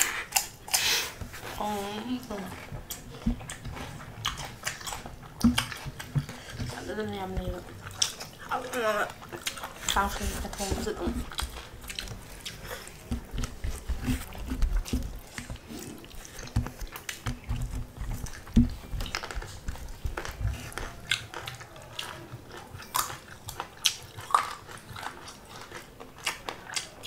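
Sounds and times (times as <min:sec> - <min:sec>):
close-up wet chewing: 0:00.0 - 0:27.0.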